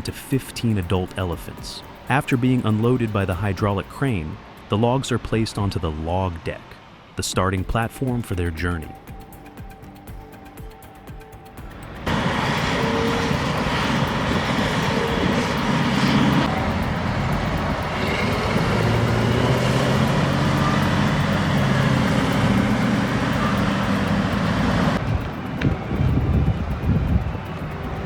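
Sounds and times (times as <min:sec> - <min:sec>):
diesel engine drone: 0:00.0 - 0:04.8, 0:08.3 - 0:28.0.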